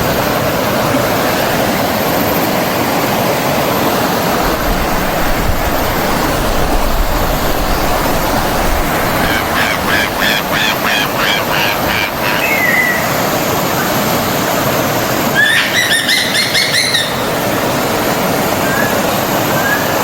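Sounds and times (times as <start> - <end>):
stream water flowing: 0.0 - 20.0
birds chirping: 7.7 - 14.0, 15.4 - 17.5.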